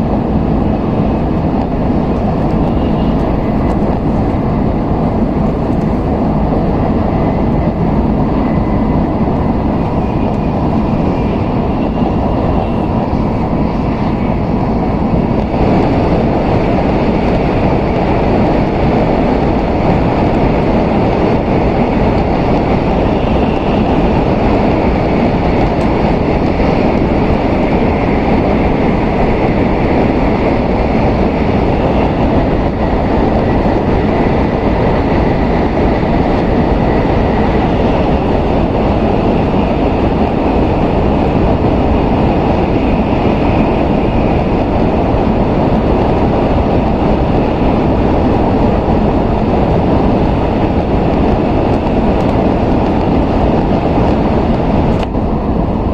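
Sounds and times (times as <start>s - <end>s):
train wheels rumbling on track: 0.0s - 55.9s
faint high whine: 2.1s - 4.8s.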